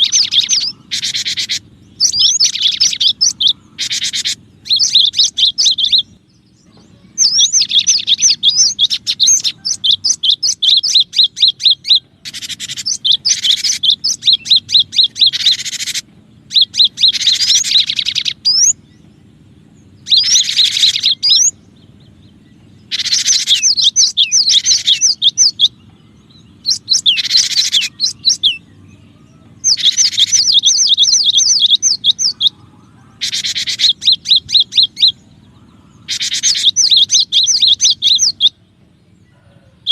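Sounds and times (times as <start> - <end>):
tit calling rapid high notes: 0.0 - 6.1, 7.1 - 18.8, 22.9 - 25.7, 26.6 - 28.6, 29.6 - 38.6.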